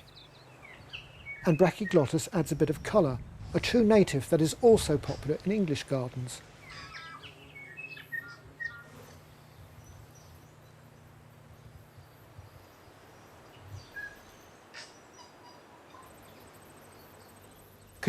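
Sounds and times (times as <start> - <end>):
bird chirps: 0.0 - 2.2, 6.5 - 18.0.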